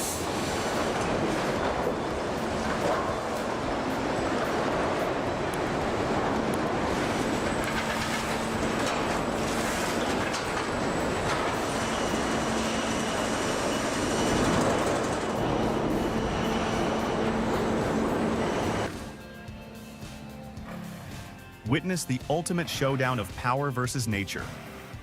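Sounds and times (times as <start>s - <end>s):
heavy machinery rattling: 0.0s - 19.0s.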